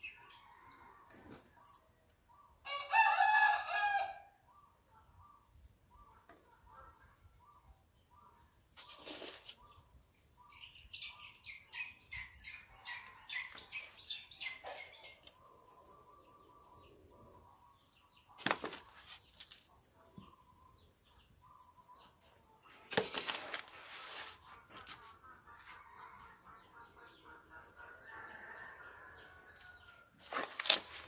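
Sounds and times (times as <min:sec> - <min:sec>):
hands rustling potting soil: 0:18.4 - 0:19.8, 0:22.7 - 0:25.7, 0:30.2 - 0:31.0.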